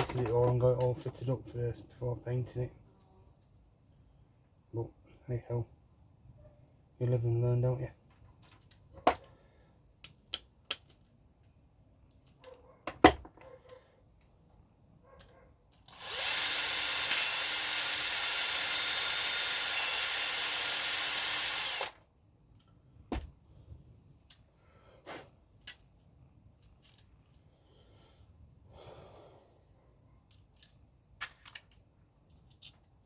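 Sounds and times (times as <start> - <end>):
small power drill running: 15.9 - 22.0
small parts clicking: 30.3 - 33.0.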